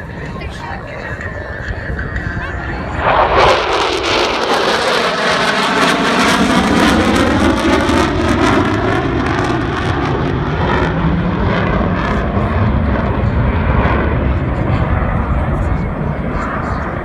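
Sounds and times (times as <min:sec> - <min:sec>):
fighter jet roaring past: 0:01.0 - 0:17.0.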